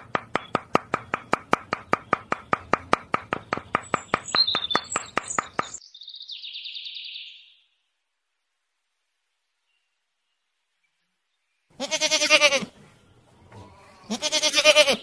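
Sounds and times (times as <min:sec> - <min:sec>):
rapid evenly spaced knocks: 0:00.0 - 0:05.8
high bird-like chirps: 0:03.7 - 0:07.8.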